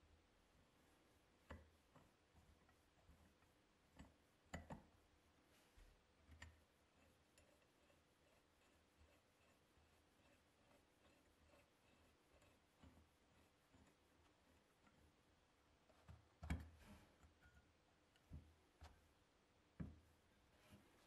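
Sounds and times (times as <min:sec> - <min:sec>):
faint sharp clicks and taps: 0:01.4 - 0:05.0, 0:05.8 - 0:09.6, 0:15.8 - 0:19.1, 0:19.7 - 0:21.0.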